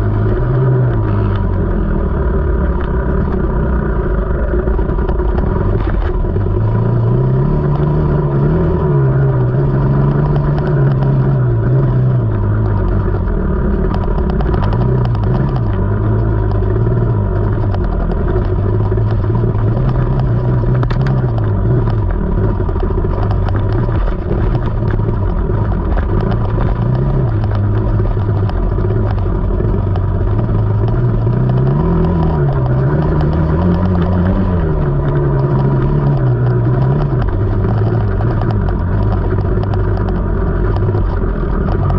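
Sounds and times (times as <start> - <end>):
rattles and clicks: 0.0 - 41.9
two-stroke dirt bike engine: 0.0 - 41.9.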